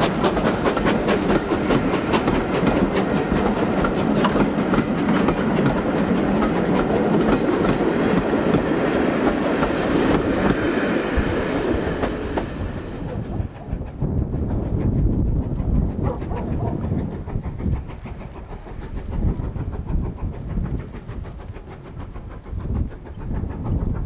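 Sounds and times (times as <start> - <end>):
steam train running: 0.0 - 24.0.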